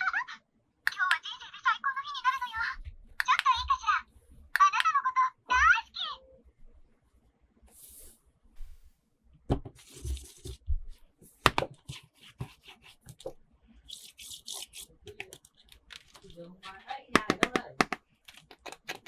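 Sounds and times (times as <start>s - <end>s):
toy packaging rustling: 13.9s - 17.0s.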